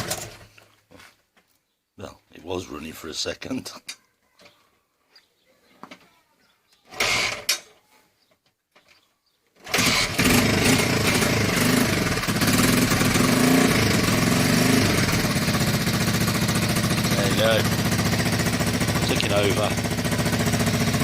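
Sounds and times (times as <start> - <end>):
motorcycle engine starting and idling: 0.0 - 0.6, 6.9 - 7.7, 9.6 - 21.0.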